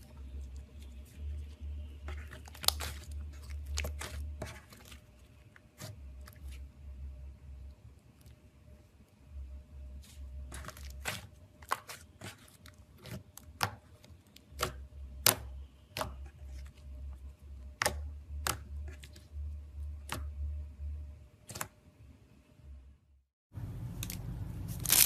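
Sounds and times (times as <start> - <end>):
slime popping and crackling: 2.0 - 4.9, 24.0 - 25.0.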